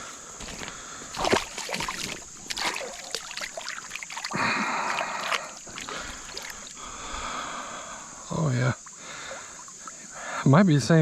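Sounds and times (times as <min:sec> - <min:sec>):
water splashing: 0:01.1 - 0:07.4.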